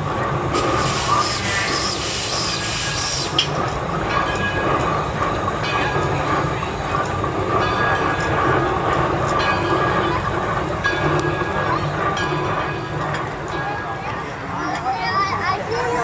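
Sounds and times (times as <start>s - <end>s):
train rumbling on rails: 0.0s - 16.0s
hiss: 0.5s - 3.6s.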